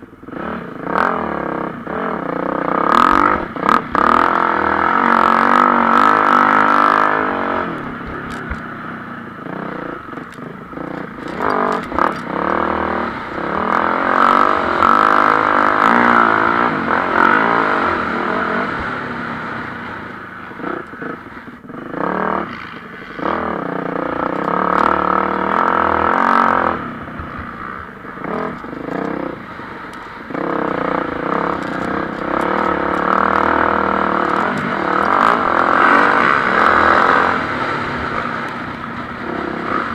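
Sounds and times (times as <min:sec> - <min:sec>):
motocross bikes revving and passing: 0:00.3 - 0:39.9.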